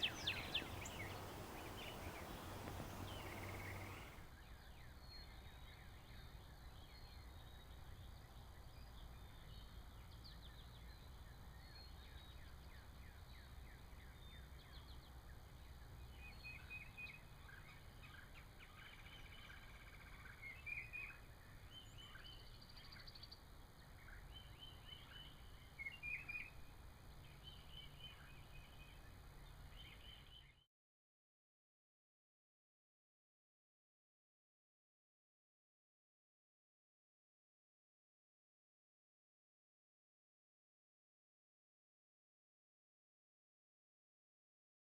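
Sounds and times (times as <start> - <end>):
faint birds chirping: 0.0 - 4.2.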